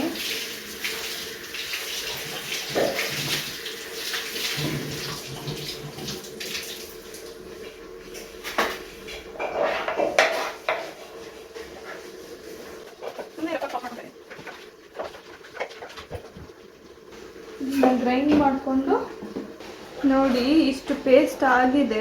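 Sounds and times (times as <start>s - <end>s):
faint steady hum: 0.0s - 22.0s
tap running: 0.8s - 21.9s
dishes and utensils clattering: 8.5s - 11.0s.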